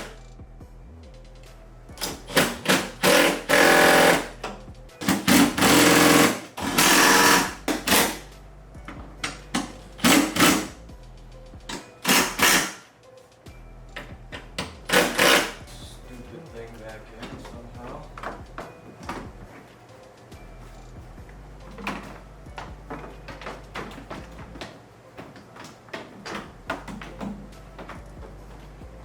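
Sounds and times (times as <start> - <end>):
power driver running bolts: 2.0 - 8.3, 9.2 - 10.7, 11.7 - 12.9, 14.6 - 15.6.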